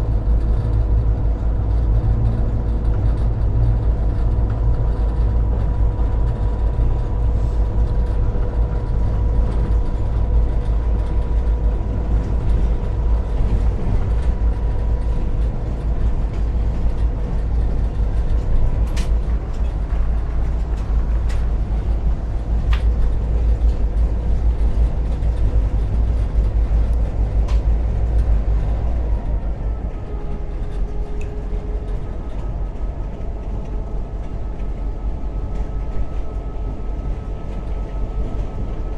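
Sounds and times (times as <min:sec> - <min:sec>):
diesel locomotive engine rumble: 0:00.0 - 0:38.9.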